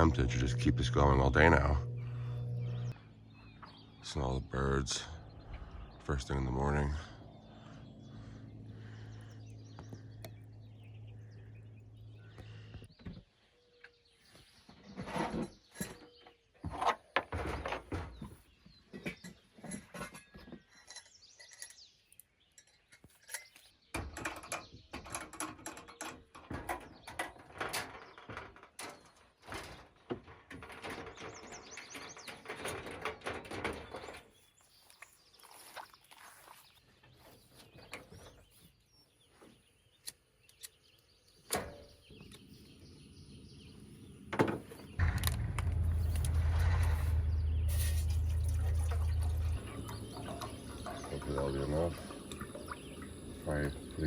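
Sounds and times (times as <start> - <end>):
low steady hum: 0.0 - 12.9, 45.0 - 54.0
birds chirping and singing: 0.0 - 54.0
objects knocking and clattering: 22.6 - 34.3, 44.4 - 53.2.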